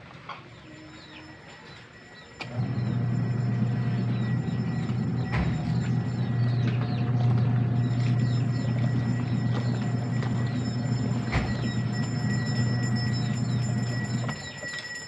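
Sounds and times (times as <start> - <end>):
small birds chirping: 0.5 - 14.8
low rumbling hum: 2.5 - 14.5.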